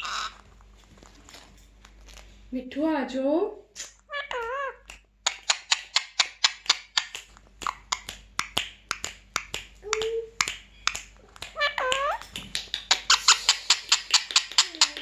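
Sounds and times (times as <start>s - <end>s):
pitch-bending bird call: 0.0s - 0.4s
lip-smack kissing clicks: 3.8s - 15.0s.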